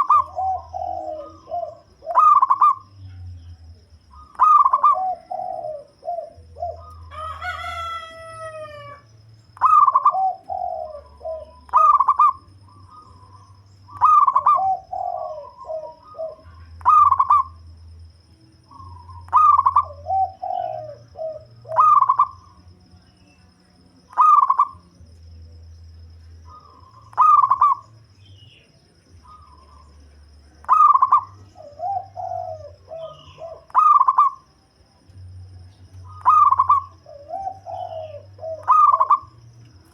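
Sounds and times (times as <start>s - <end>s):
dove cooing song: 0.0s - 39.9s
rooster crowing: 6.8s - 9.2s.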